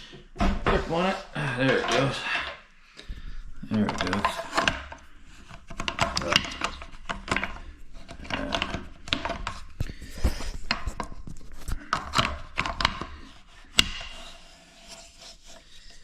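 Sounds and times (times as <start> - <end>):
wrench scraping and creaking on nut: 3.7 - 15.8.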